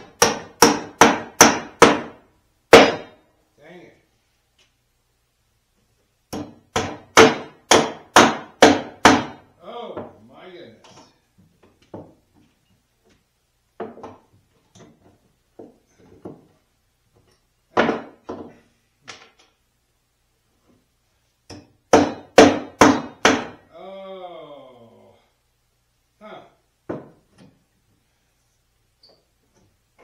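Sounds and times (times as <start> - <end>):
knocks of wood and tools on boards: 0.0 - 3.2, 6.3 - 10.2, 10.9 - 13.2, 13.8 - 16.6, 17.2 - 19.5, 21.5 - 23.6, 26.9 - 27.6.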